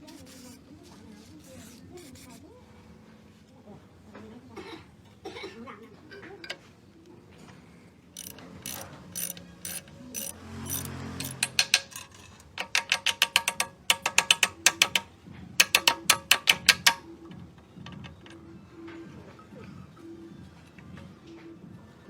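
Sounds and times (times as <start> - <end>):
ratchet wrench clicking: 8.2 - 17.0.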